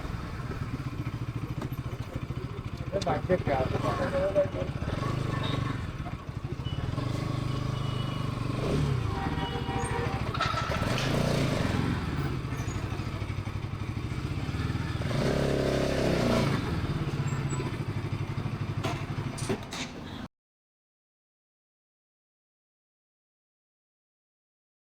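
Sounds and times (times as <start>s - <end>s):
motorcycle engine and exhaust running: 0.0s - 19.8s.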